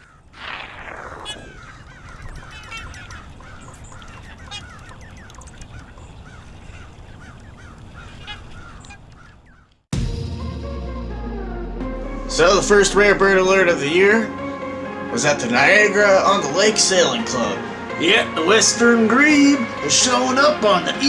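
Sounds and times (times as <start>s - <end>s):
flock of birds calling: 0.0s - 9.8s, 13.9s - 21.0s.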